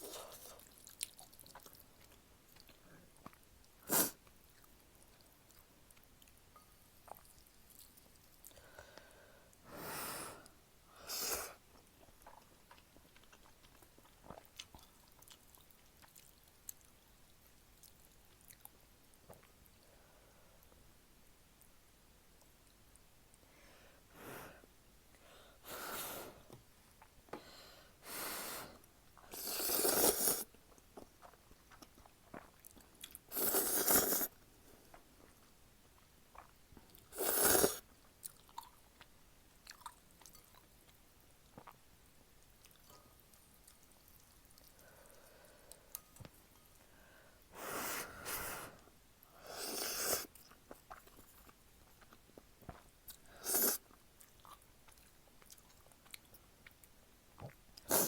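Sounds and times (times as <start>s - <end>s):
faint chewing: 0.0s - 9.6s, 11.6s - 19.9s, 28.8s - 47.0s, 48.2s - 58.0s
noodles being slurped: 29.3s - 30.5s, 33.3s - 34.4s, 37.1s - 37.8s, 52.7s - 53.9s.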